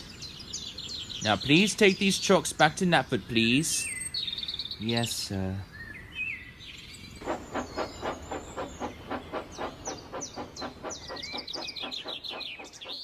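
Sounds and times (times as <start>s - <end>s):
birds chirping: 0.0s - 13.0s
steam locomotive chuffing: 7.2s - 13.0s.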